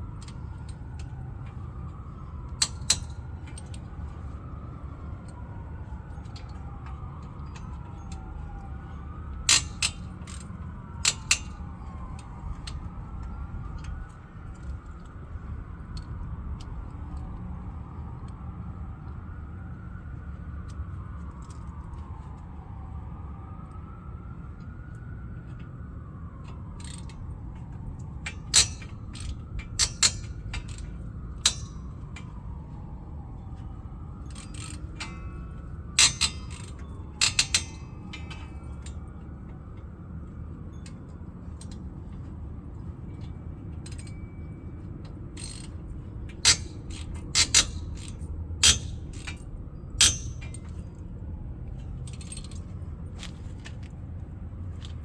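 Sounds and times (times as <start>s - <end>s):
metal tools clicking: 28.3s - 32.3s, 34.2s - 35.4s, 36.0s - 38.9s, 45.4s - 50.8s.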